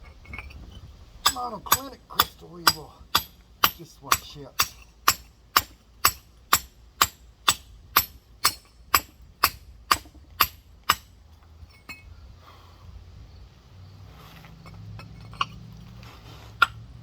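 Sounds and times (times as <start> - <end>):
rock hammer chipping stone: 1.2 - 11.1.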